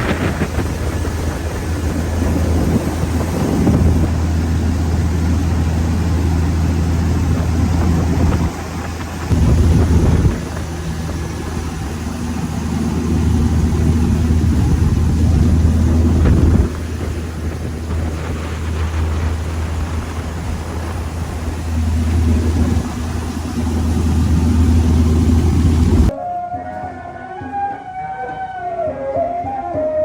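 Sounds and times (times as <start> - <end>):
wind and water rushing: 0.0 - 26.1
boat engine running: 0.0 - 26.2.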